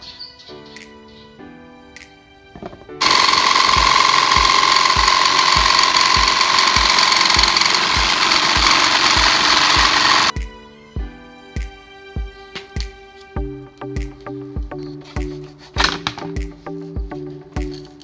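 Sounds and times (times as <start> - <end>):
background music with steady beat: 0.0 - 18.0
power tool whining: 3.0 - 10.3.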